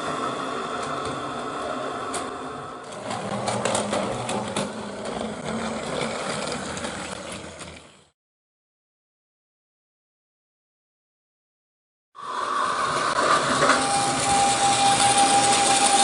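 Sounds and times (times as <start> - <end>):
wheels clicking over track joints: 2.1 - 8.1
toy train motor whirring: 2.9 - 8.1, 12.3 - 16.0.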